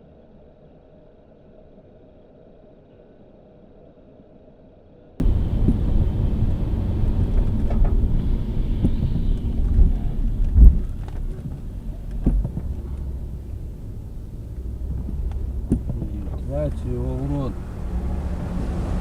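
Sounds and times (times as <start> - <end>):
road and engine rumble: 5.2 - 19.0.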